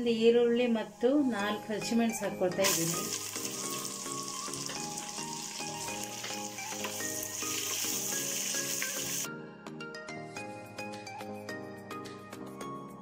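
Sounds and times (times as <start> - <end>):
background music: 0.0 - 13.0
onions sizzling in hot oil: 2.6 - 9.3.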